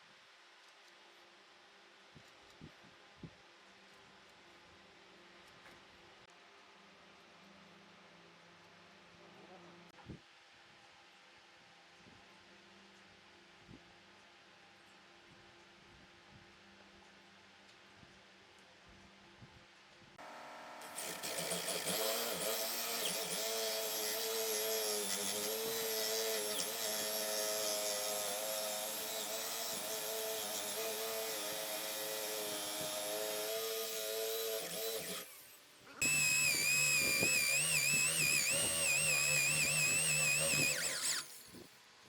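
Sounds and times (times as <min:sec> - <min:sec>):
electric power tool running: 0:20.2 - 0:41.7
high-pitched power tool under load: 0:20.2 - 0:41.7.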